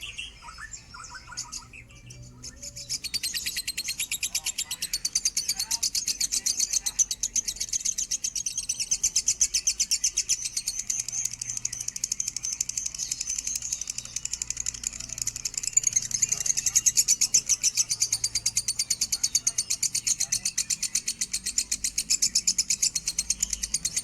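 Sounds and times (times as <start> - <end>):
lovebird chattering song: 0.0 - 24.0.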